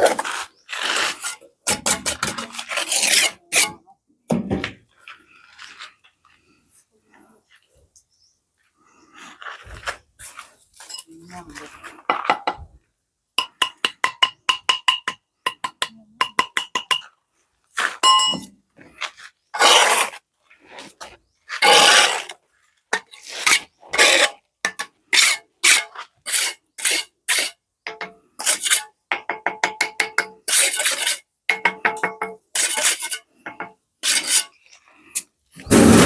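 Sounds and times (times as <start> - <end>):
scraping strokes: 0.0 - 3.8, 34.0 - 36.0.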